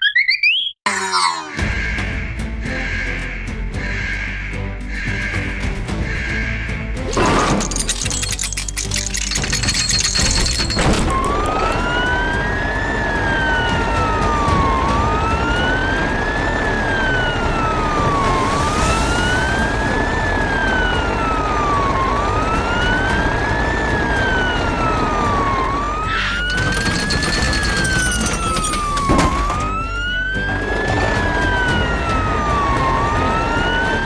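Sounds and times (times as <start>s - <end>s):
fire truck siren wailing: 11.1s - 34.0s.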